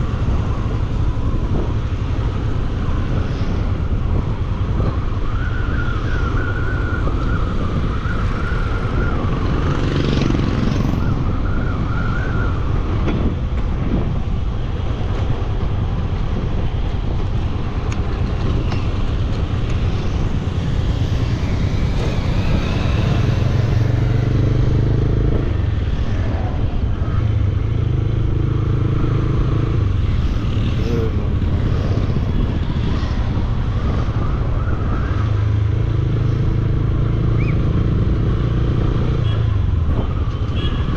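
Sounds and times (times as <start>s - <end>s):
wind and road noise: 0.0s - 40.9s
motorcycle engine revving: 19.6s - 25.7s.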